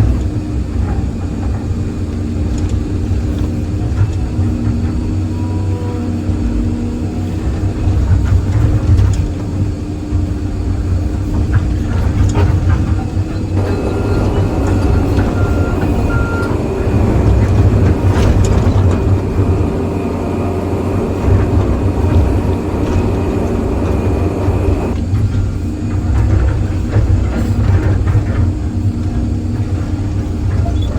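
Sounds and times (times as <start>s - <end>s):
excavator diesel engine running: 0.0s - 30.9s
knocks and clanks: 7.5s - 30.9s.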